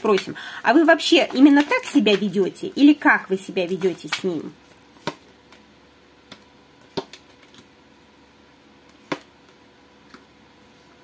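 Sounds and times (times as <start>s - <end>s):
cards tapping and clicking: 5.0s - 7.7s, 8.9s - 10.3s.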